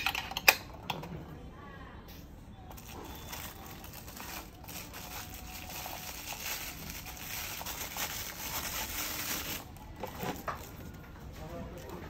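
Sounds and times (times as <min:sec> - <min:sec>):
packaging crinkling and rustling: 0:02.7 - 0:12.0.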